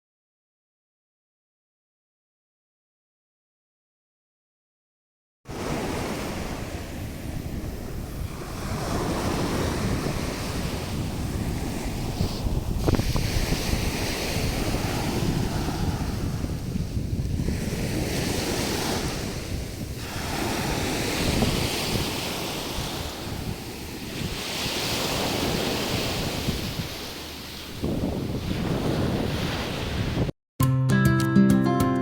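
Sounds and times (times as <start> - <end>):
sea waves washing onto shore: 5.5 - 30.3
wind buffeting microphone: 5.5 - 30.3.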